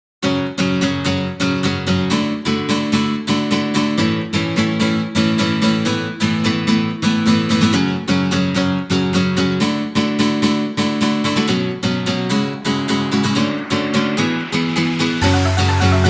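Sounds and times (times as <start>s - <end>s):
acoustic guitar strumming: 15.2s - 16.0s.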